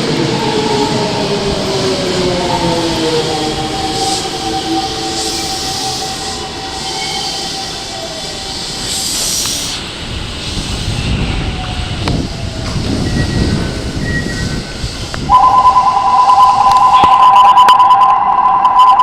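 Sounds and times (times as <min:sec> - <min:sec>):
train low rumbling: 0:00.0 - 0:18.6
electric train whine: 0:00.0 - 0:19.0
air brake hiss: 0:05.1 - 0:11.2.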